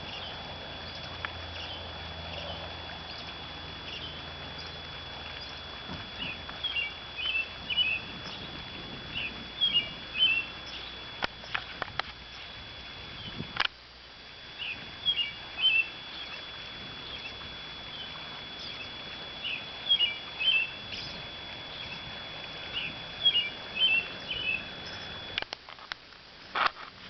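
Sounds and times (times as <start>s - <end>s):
steady high-pitched tone: 0.0s - 25.6s
bird singing quick chirps: 9.1s - 10.9s, 22.7s - 25.1s.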